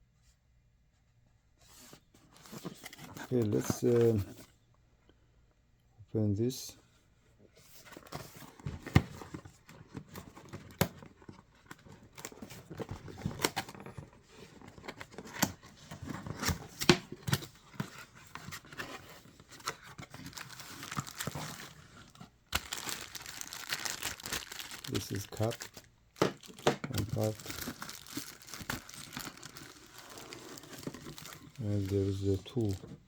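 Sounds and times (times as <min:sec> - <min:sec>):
packaging tearing and crinkling: 0:20.0 - 0:21.8, 0:22.5 - 0:32.8.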